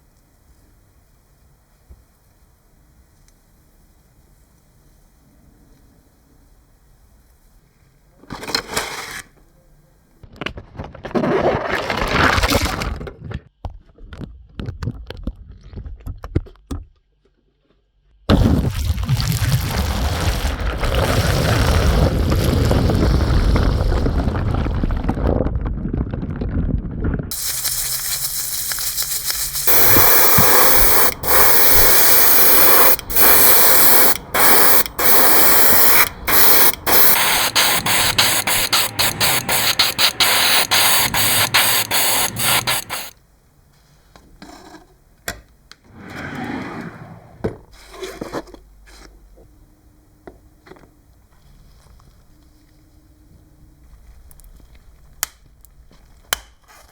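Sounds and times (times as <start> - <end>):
high-pressure spraying hiss: 27.3 - 43.1.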